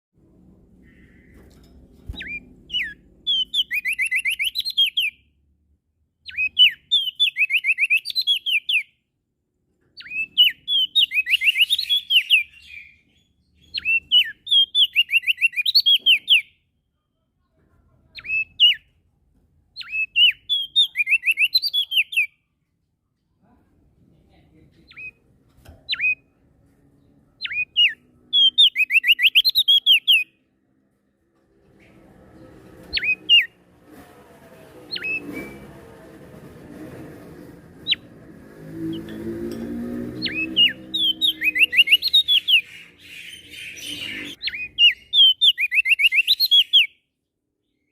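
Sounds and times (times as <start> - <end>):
songbird singing: 0.7 - 5.4, 6.2 - 9.0, 9.9 - 16.7, 18.1 - 19.0, 19.7 - 22.5, 24.6 - 30.5, 31.8 - 33.6, 34.8 - 35.8, 37.8 - 47.9.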